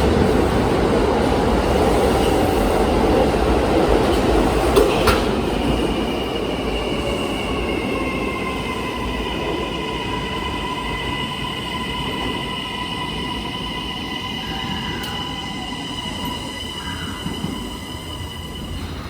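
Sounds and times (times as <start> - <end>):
electric train rumbling: 0.0 - 19.0
high multi-tone squeal: 6.5 - 19.0.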